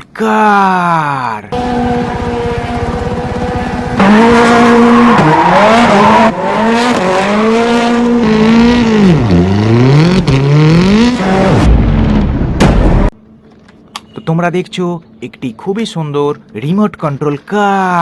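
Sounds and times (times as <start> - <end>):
race car engine revving: 1.5 - 13.1
sharp click: 13.6 - 14.2.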